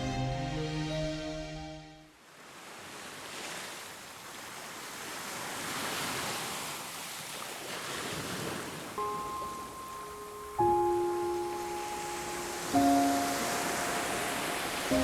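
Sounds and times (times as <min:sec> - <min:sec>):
sustained music notes: 0:00.0 - 0:02.1, 0:09.0 - 0:15.0
sea waves washing onto beach: 0:02.2 - 0:15.0.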